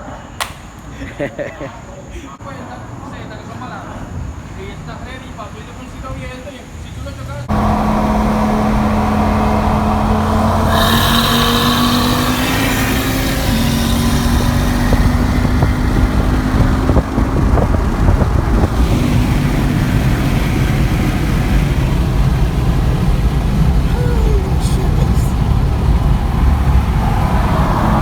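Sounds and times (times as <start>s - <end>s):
road rumble: 6.7s - 28.0s
car engine pulling under load: 7.4s - 28.0s
wind noise: 7.5s - 28.0s.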